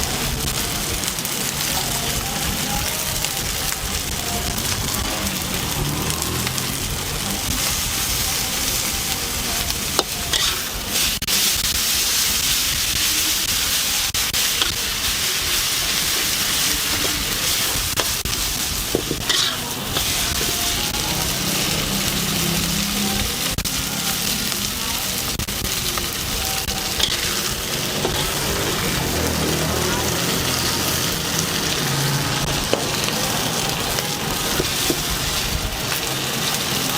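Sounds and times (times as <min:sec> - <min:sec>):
stir-frying hiss in a wok: 0:00.0 - 0:36.9.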